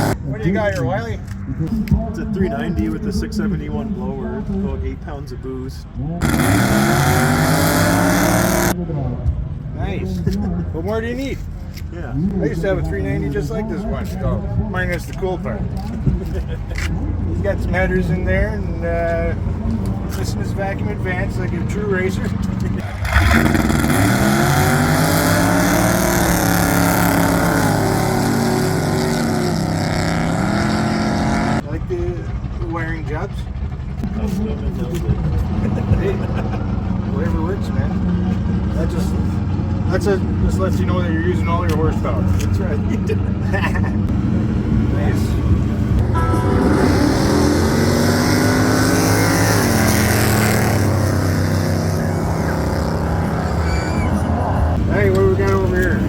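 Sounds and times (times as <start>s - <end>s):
supercharged engine revving: 6.2s - 8.8s, 17.4s - 31.9s, 44.1s - 56.0s.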